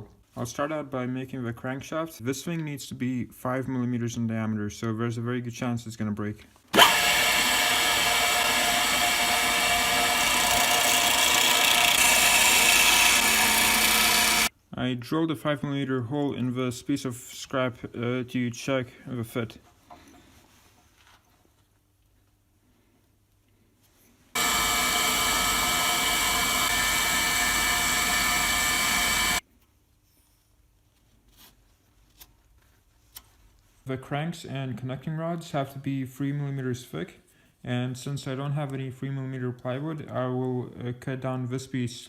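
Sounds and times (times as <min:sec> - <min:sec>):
electric drill running: 0:06.7 - 0:14.5, 0:24.4 - 0:29.4
power tool motor whining: 0:06.7 - 0:14.5, 0:24.4 - 0:29.4.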